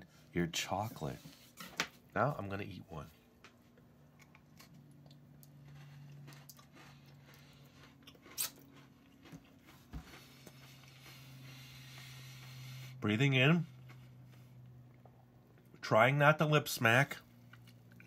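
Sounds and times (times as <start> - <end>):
low steady hum: 0.0 - 18.0
person crunching a biscuit: 3.8 - 12.0.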